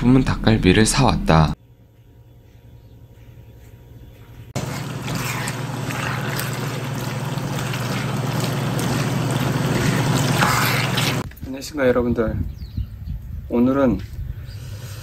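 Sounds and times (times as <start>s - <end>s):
wooden spatula stirring: 4.6s - 11.2s.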